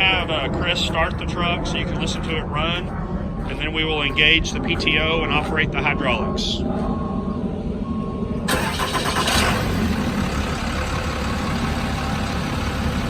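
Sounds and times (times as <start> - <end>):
diesel engine starting and idling: 6.4 - 13.0.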